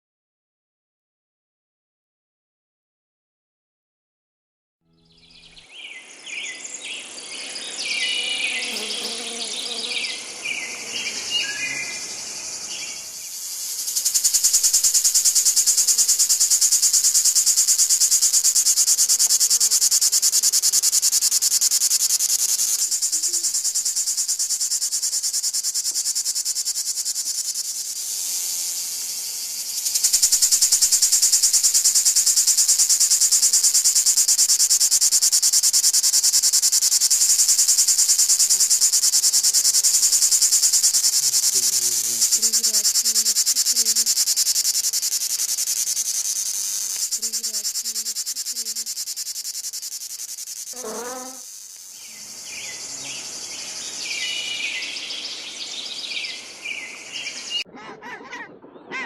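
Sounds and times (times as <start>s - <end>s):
grasshopper stridulating: 5.7s - 57.6s.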